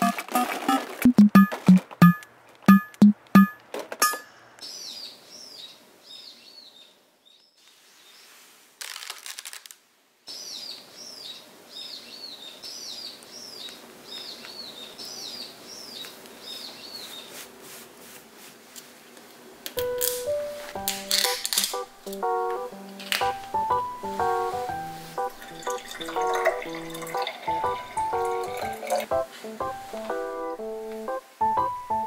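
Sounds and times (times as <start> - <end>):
crackling: 8.8 - 9.8, 19.8 - 27.5
small bird chirping: 10.3 - 17.4.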